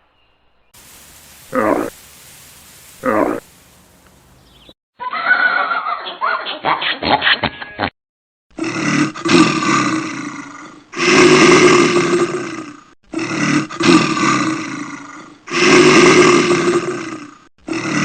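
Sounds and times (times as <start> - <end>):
big cat roaring: 8.6 - 18.0.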